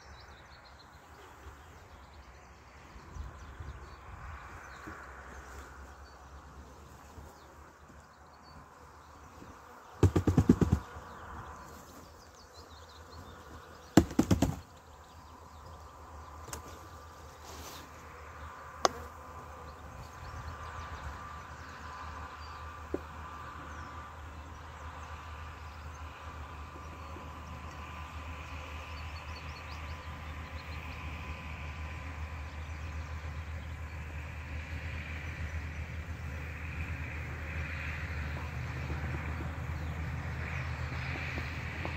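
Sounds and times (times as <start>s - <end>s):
bees buzzing: 9.6s - 11.6s, 13.0s - 14.7s
rapid knocking: 10.0s - 10.9s, 14.0s - 14.6s.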